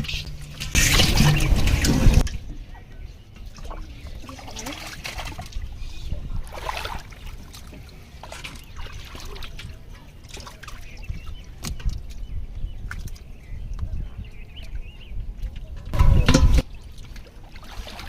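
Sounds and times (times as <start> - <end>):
river water splashing: 6.4 - 11.0, 16.7 - 18.0.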